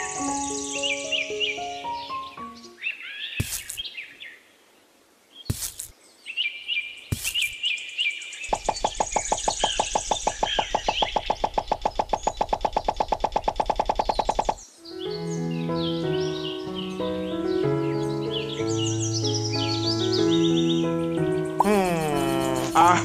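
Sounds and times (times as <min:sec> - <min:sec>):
birds chirping: 0:00.0 - 0:04.6, 0:05.3 - 0:23.0
fast even pulsing: 0:08.5 - 0:14.6
sharp knocks: 0:08.5 - 0:14.6.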